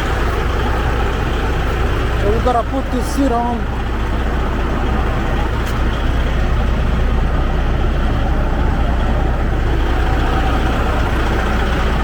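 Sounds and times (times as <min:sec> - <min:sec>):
heavy engine idling: 0:00.0 - 0:12.0.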